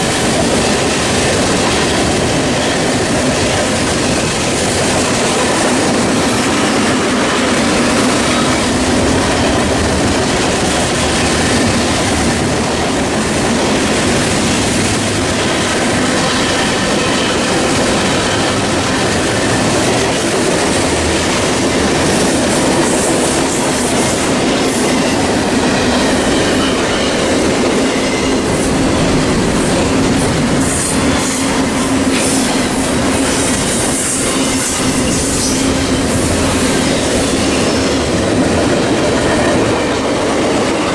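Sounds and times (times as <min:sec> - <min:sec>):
train wheels clattering on rails: 0:00.0 - 0:40.9
train wheels squealing: 0:21.7 - 0:38.1.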